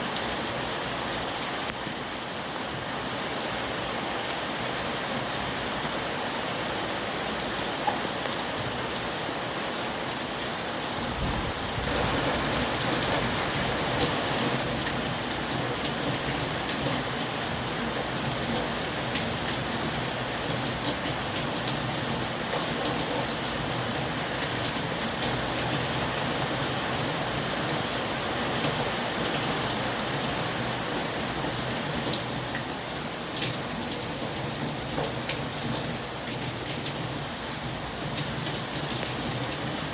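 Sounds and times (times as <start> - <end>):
heavy rain falling: 0.0 - 39.9
raindrops ticking on a surface: 10.4 - 39.9.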